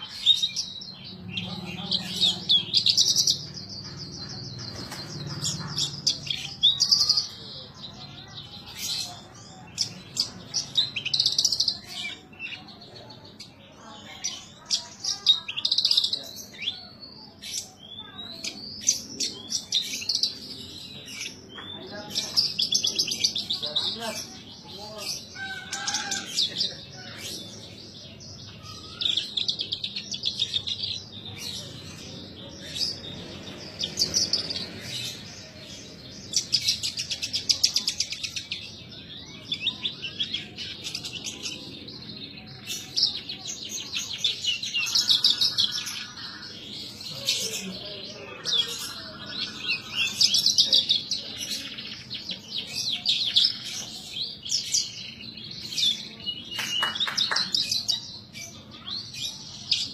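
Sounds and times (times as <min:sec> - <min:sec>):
bird trilling and chirping: 0:00.0 - 0:59.9.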